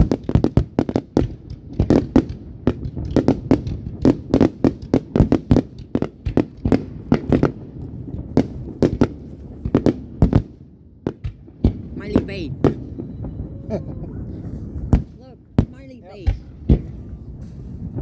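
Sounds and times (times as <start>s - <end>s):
fireworks banging: 0.0s - 18.0s
low rumble: 11.8s - 18.0s.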